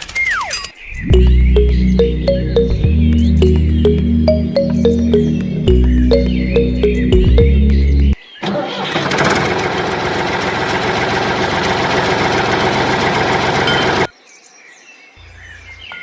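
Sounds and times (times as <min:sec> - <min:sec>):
faint bird chirps: 0:15.2 - 0:16.0.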